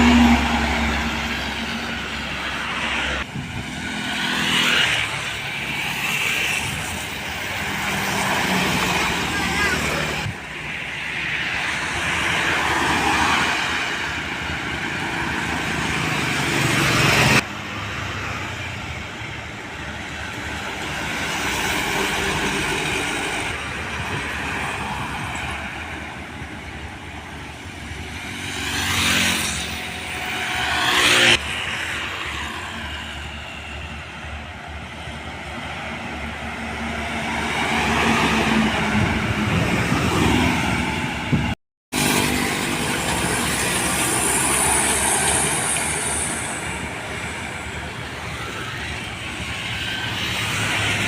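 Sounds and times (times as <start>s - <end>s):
heavy trucks passing: 0.0s - 51.0s.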